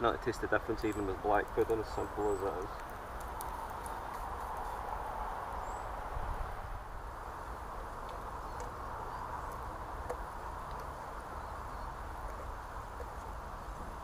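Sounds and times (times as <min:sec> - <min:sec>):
small pops and crackles: 0:00.8 - 0:05.0, 0:08.0 - 0:13.4.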